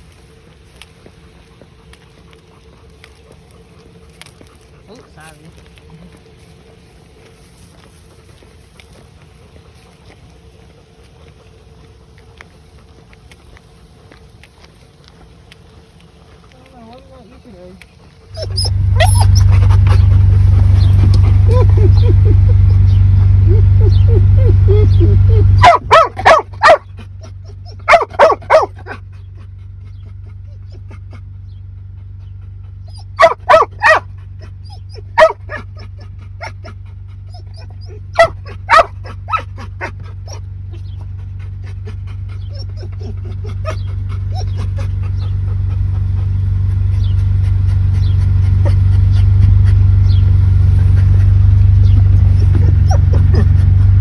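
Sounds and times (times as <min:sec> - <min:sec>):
steady low rumble: 0:00.0 - 0:54.0
dog barking: 0:18.4 - 0:29.0, 0:32.9 - 0:36.6, 0:37.6 - 0:40.4, 0:51.0 - 0:54.0.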